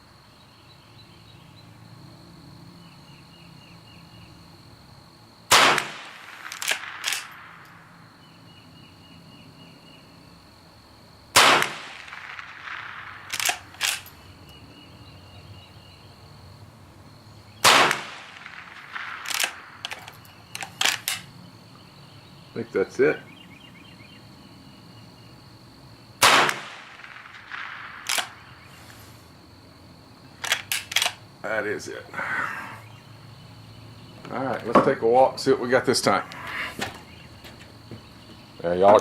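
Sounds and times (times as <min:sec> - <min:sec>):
insects trilling: 0:00.0 - 0:39.0
rifle shots: 0:05.5 - 0:07.8, 0:11.3 - 0:14.2, 0:17.6 - 0:21.3, 0:26.2 - 0:28.7
rifle lever clacks: 0:06.4 - 0:07.4, 0:13.3 - 0:14.1, 0:19.2 - 0:21.3, 0:28.0 - 0:28.3, 0:30.4 - 0:31.2.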